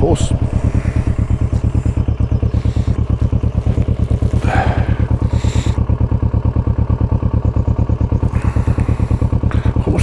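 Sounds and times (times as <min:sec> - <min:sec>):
rough rush of noise: 0:00.0 - 0:05.8
motorcycle engine running: 0:00.0 - 0:10.0.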